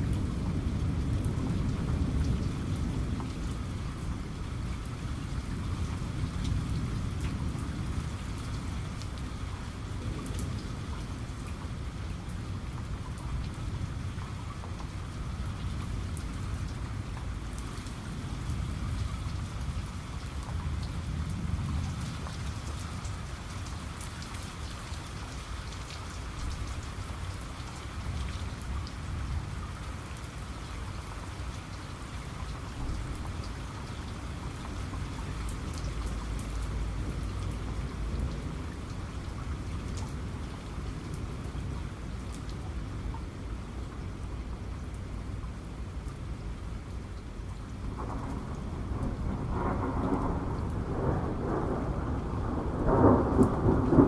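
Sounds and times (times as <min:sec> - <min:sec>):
heavy rain: 0:00.0 - 0:54.0
distant thunder rumble: 0:47.8 - 0:54.0.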